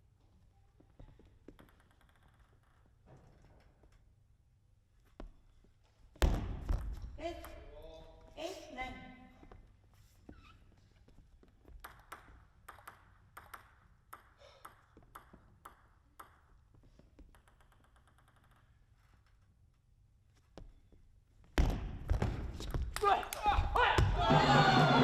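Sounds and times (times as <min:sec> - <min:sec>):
table tennis ball bouncing: 0:01.1 - 0:03.0, 0:11.7 - 0:19.0.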